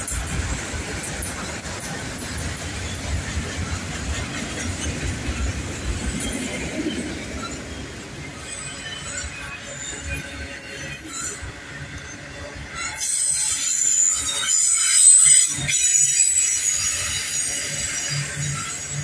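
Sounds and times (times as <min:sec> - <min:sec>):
freight train rolling past: 0:00.0 - 0:19.0
high-pitched wheel squeal: 0:06.2 - 0:11.5, 0:12.7 - 0:19.0.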